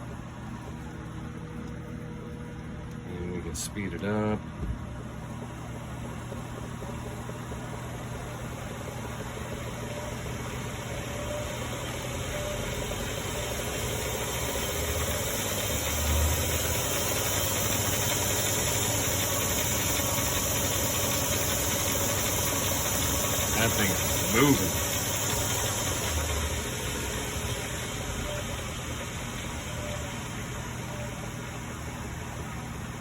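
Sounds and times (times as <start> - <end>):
electric motor whine rising in pitch: 9.6 - 21.7.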